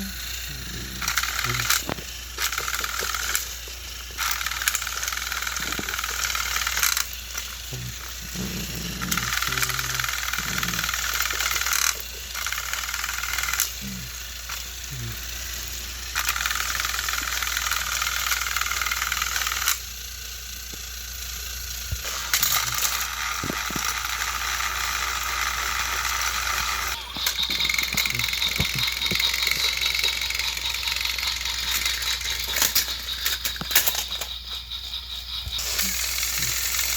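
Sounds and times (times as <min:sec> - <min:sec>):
toy train motor whirring: 0:00.0 - 0:36.9.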